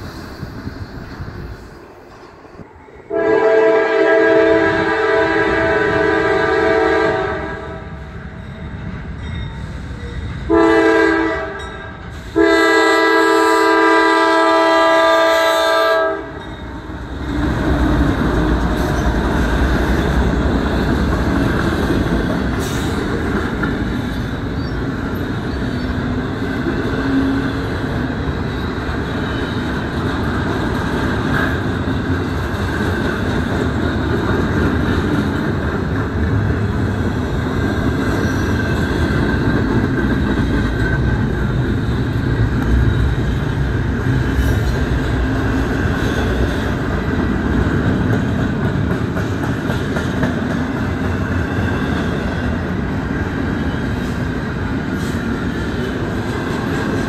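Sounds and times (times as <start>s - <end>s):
train rolling past: 0.0s - 57.0s
locomotive air horn: 3.1s - 8.0s, 10.5s - 16.4s.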